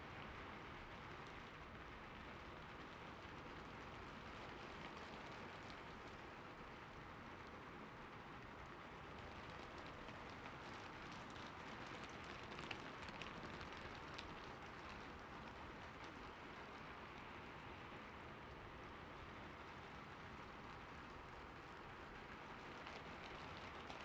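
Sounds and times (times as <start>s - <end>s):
raindrop ticks: 9.1s - 17.3s, 22.3s - 24.0s.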